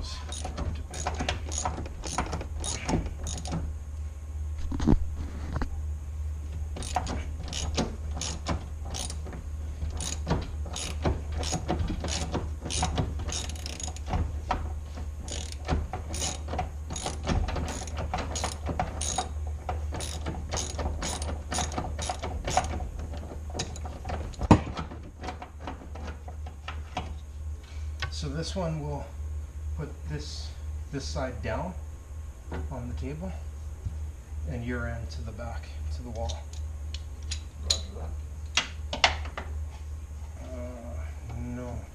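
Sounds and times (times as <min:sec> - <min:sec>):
ratchet wrench clicking: 0:00.3 - 0:03.6, 0:06.8 - 0:09.2, 0:09.9 - 0:14.1, 0:15.2 - 0:19.3, 0:19.9 - 0:22.8.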